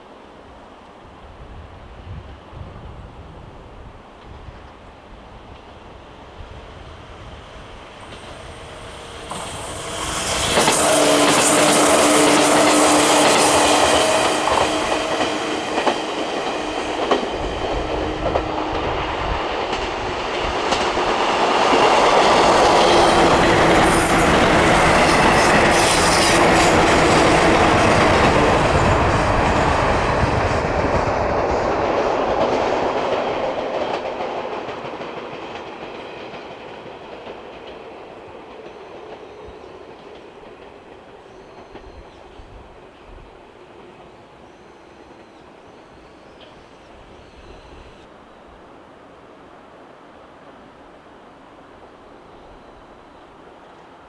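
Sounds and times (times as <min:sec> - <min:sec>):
electric train hum: 0:05.1 - 0:37.8
train wheels clacking over rail joints: 0:06.5 - 0:41.9.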